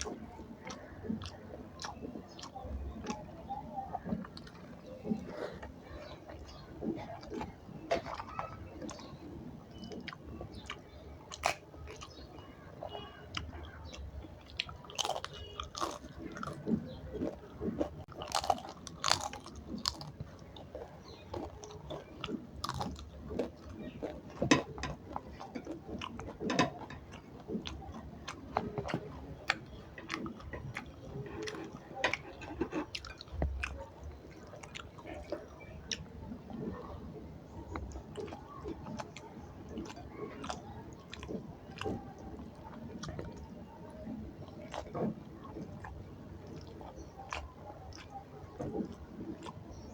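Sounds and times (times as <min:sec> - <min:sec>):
person chewing crunchy food: 0:00.0 - 0:37.0, 0:37.6 - 0:49.9.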